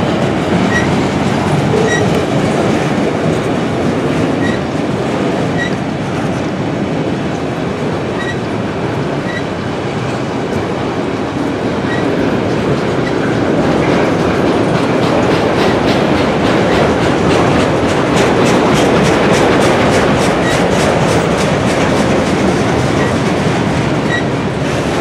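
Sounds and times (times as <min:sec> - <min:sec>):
freight train wheels rumbling: 0:00.0 - 0:25.0
wheels clickety-clack: 0:00.0 - 0:25.0
high wheel squeaks: 0:00.6 - 0:01.0, 0:01.6 - 0:02.4, 0:04.4 - 0:04.7, 0:05.5 - 0:05.8, 0:08.2 - 0:08.4, 0:09.2 - 0:09.5, 0:11.9 - 0:12.1, 0:24.0 - 0:24.3.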